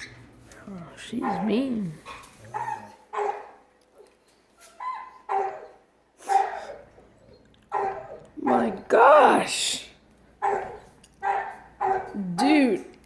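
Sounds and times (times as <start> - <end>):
dog barking: 1.2 - 1.6, 2.5 - 3.7, 4.8 - 6.8, 7.7 - 8.8, 10.4 - 12.2.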